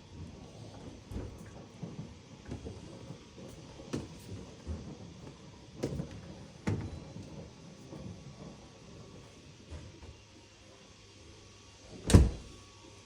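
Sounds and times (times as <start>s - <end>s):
dishwasher door clicks and knocks: 12.1s - 12.5s.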